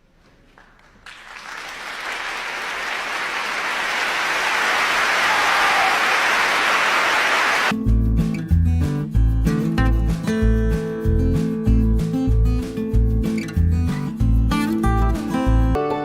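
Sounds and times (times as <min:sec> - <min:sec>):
applause: 0:00.5 - 0:07.7
strummed acoustic guitar music: 0:07.8 - 0:16.0.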